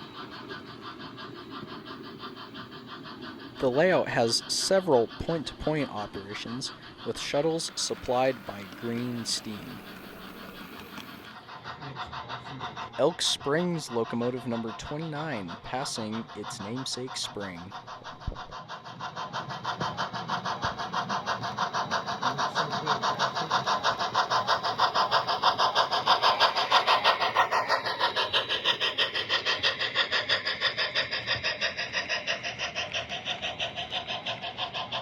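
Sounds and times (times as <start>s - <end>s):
model steam locomotive chuffing: 0.0s - 35.0s.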